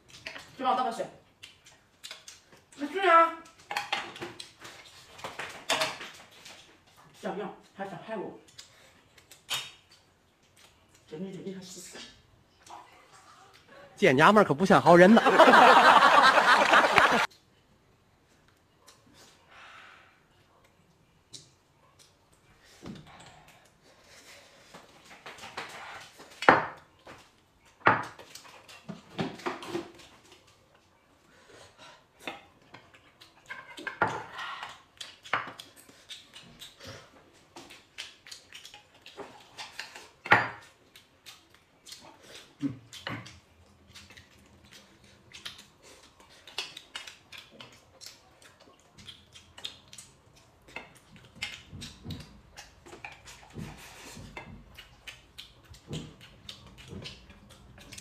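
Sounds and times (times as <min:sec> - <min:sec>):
chewing and slurping: 0:29.9 - 0:58.0.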